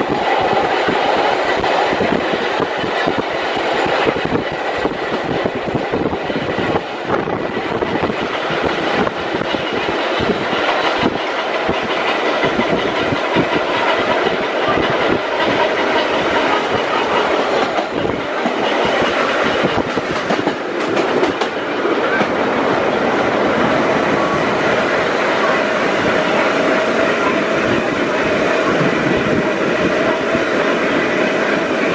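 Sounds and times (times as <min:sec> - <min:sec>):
subway car rumble: 0:00.0 - 0:31.9
wheels clattering over rail joints: 0:07.5 - 0:24.3.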